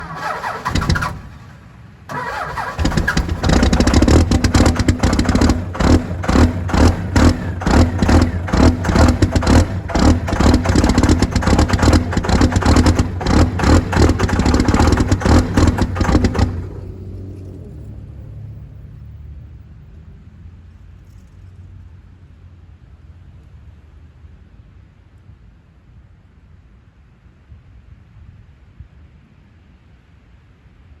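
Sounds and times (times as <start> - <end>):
diesel engine starting and running: 0.0 - 20.7.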